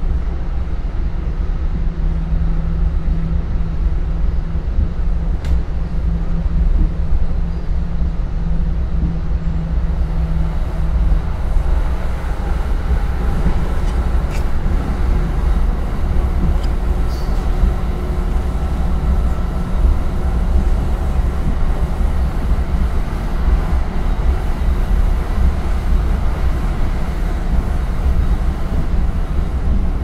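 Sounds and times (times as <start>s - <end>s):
train low rumble inside coach: 0.0s - 30.0s.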